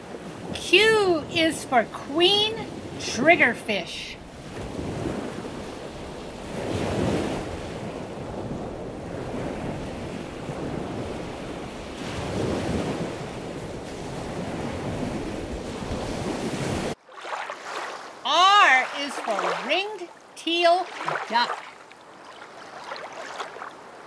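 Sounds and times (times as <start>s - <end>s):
rushing water like surf: 0.0s - 24.0s.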